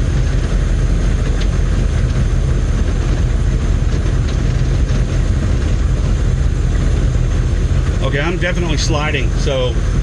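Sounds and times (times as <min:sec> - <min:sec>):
diesel engine low drone: 0:00.0 - 0:10.0.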